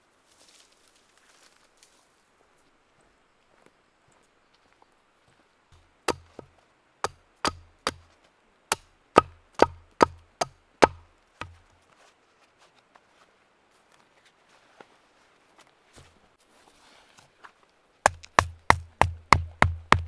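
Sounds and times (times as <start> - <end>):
axe chopping firewood: 6.1 - 8.1, 8.7 - 11.6, 18.1 - 20.0.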